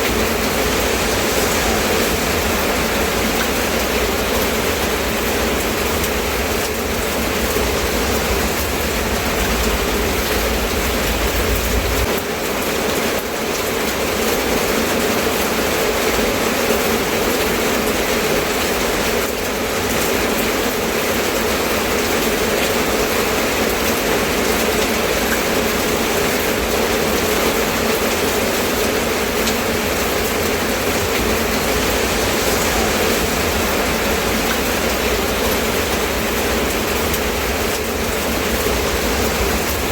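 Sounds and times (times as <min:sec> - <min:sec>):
low rumble: 0:00.0 - 0:12.1, 0:29.4 - 0:39.9
steady rain falling: 0:00.0 - 0:39.9.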